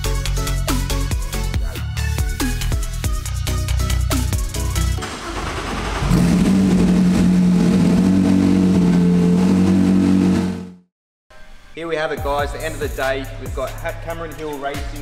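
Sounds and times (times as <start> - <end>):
electronic music with beat: 0.0 - 5.0, 12.2 - 15.0
race car engine revving: 5.0 - 10.9.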